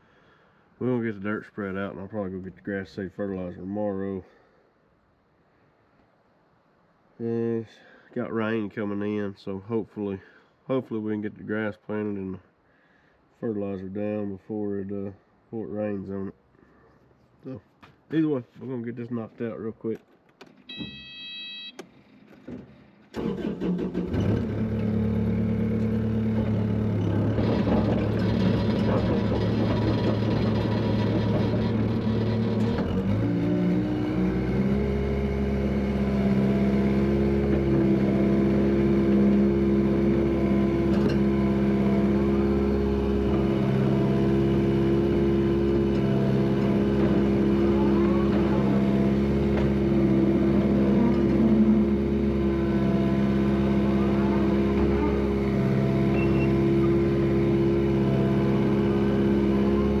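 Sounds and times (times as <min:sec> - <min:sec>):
heavy equipment engine revving: 0:23.2 - 1:00.0.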